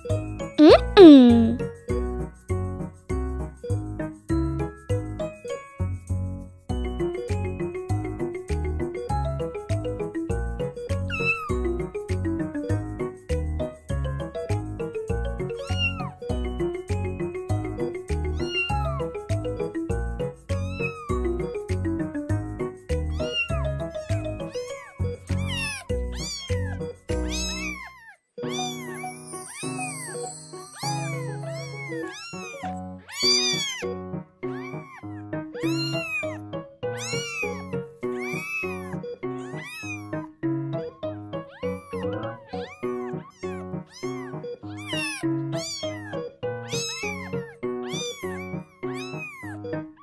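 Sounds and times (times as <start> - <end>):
background music: 0.6 - 1.6, 6.0 - 27.8
kittens mewing: 0.6 - 1.6, 18.4 - 18.9, 20.5 - 21.2, 23.2 - 30.0, 30.8 - 33.9, 34.5 - 40.2, 41.5 - 49.7.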